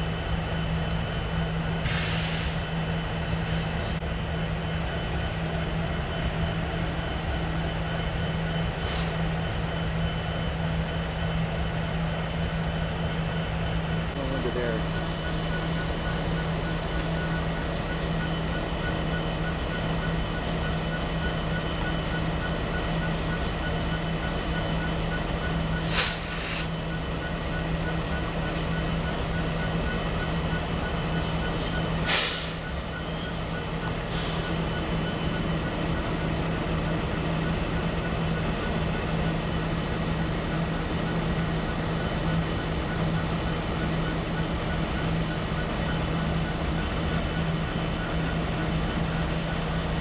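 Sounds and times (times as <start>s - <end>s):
truck engine idling: 0.0s - 50.0s
repeating high beep: 28.8s - 29.7s.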